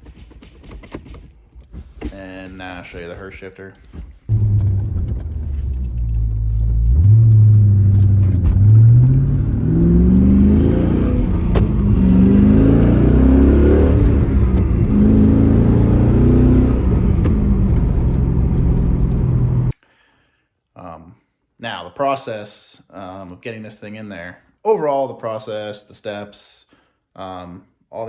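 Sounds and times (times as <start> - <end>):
car engine accelerating: 4.3 - 19.7.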